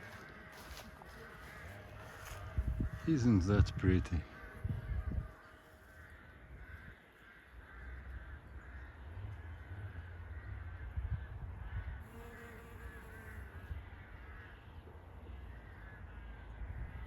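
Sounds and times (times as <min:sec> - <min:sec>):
birds cawing: 0:00.0 - 0:17.0
wind rumble on microphone: 0:02.1 - 0:05.5, 0:08.0 - 0:12.3, 0:16.4 - 0:17.0.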